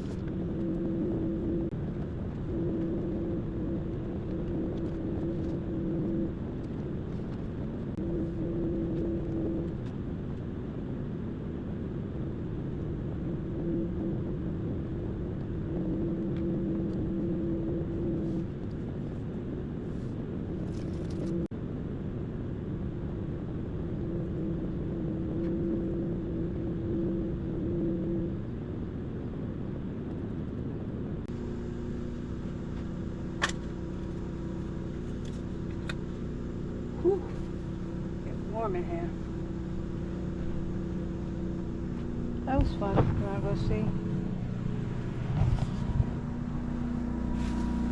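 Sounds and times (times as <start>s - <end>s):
vacuum cleaner running: 36.9s - 47.9s.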